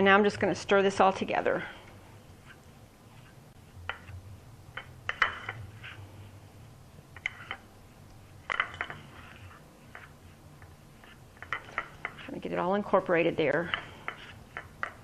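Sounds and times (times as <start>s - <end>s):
utensil scraping and clinking a dish: 3.9s - 6.1s, 7.2s - 7.7s, 8.4s - 15.0s.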